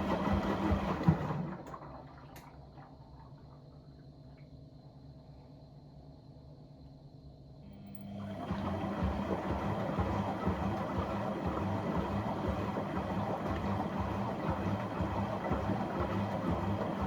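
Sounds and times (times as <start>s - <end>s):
dishwasher pump humming: 7.7s - 17.0s.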